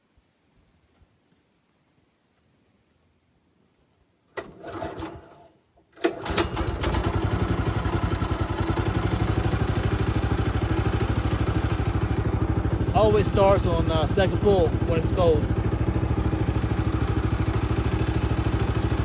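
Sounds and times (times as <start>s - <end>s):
pull-start cord: 4.4s - 9.7s
small gasoline engine running: 6.1s - 19.0s.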